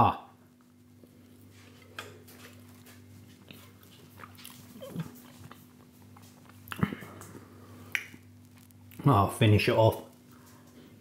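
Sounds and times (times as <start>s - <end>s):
steady low hum: 0.0s - 11.0s
chewing and mouth sounds: 1.2s - 9.0s.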